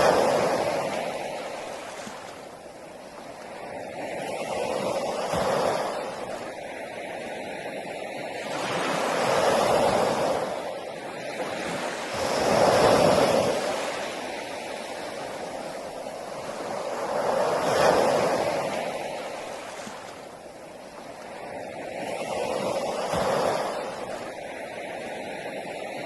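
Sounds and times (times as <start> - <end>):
sea waves breaking on beach: 0.0 - 26.0.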